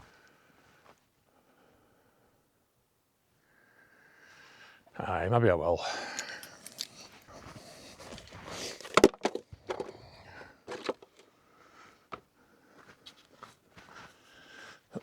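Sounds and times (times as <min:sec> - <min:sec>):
knocks and clatter of gear: 0:10.7 - 0:11.3.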